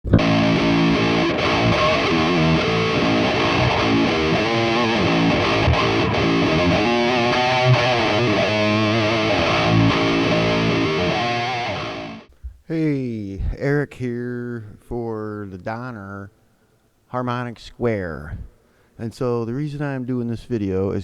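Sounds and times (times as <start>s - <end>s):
distorted electric guitar lead: 0.0s - 12.3s.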